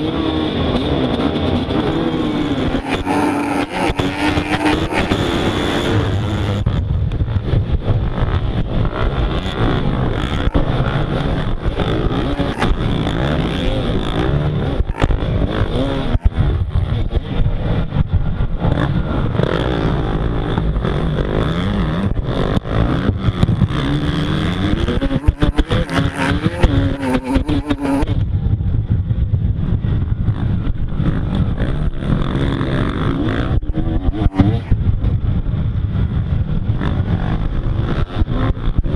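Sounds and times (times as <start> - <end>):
motocross bike engine revving: 0.0 - 28.8, 29.6 - 38.9.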